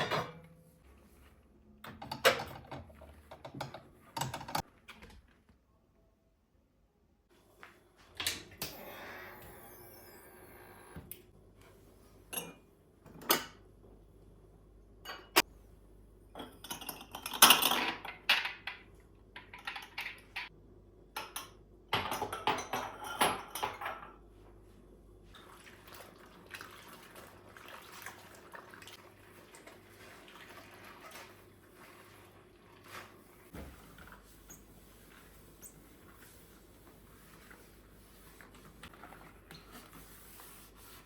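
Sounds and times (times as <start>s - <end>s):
dishes and cutlery clattering: 21.2s - 24.2s.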